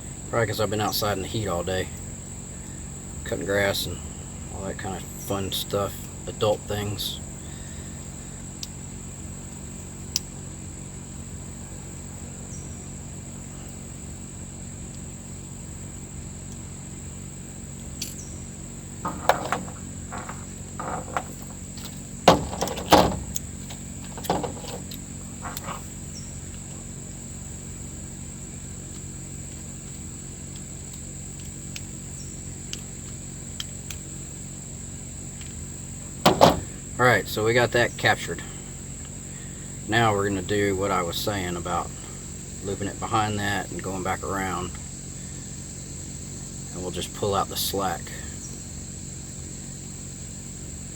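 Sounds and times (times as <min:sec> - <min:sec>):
crickets trilling: 0:00.0 - 0:50.9
low steady hum: 0:00.0 - 0:50.9
small metal parts knocking: 0:19.0 - 0:25.9, 0:36.3 - 0:36.9.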